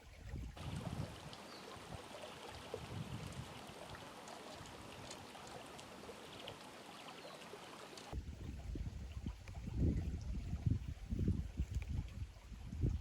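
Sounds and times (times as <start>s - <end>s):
creek water trickling: 0.0s - 13.0s
water ticking over stones: 0.6s - 8.2s, 10.6s - 13.0s.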